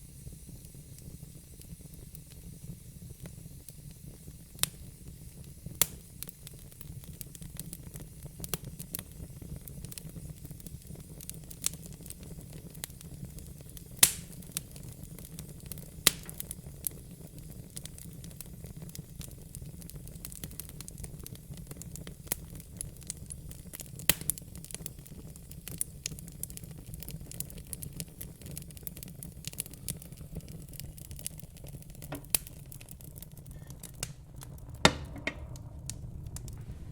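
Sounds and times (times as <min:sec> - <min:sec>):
wood fire crackling and popping: 0:00.0 - 0:36.9
low steady rumble: 0:33.0 - 0:36.9.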